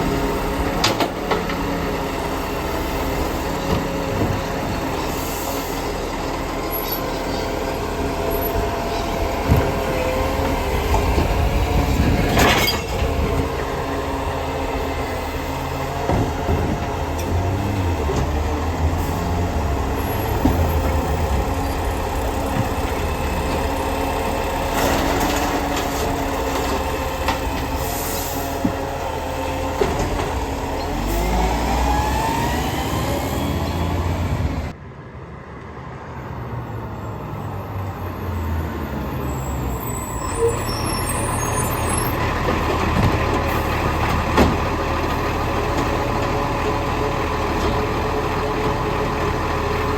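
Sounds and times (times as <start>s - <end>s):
garbage truck running: 0.0s - 34.8s, 37.8s - 49.9s
air brakes hissing: 27.7s - 28.6s.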